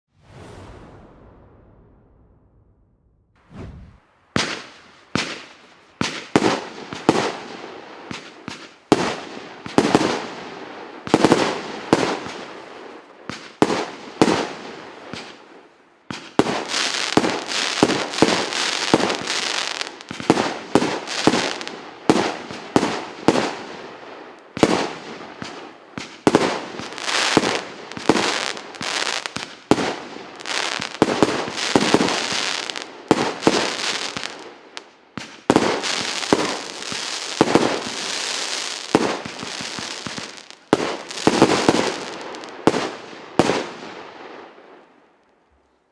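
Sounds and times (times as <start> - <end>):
firework launch bangs and bursts: 0.1 - 10.4, 24.6 - 34.6, 35.2 - 43.8
firework crackling: 16.1 - 43.8.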